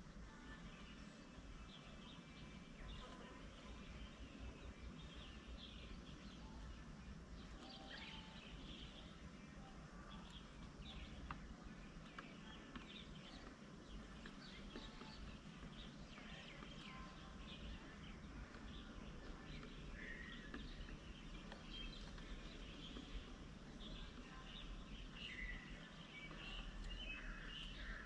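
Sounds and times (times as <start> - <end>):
low background noise: 0.0 - 28.0
birds chirping and calling: 10.2 - 28.0.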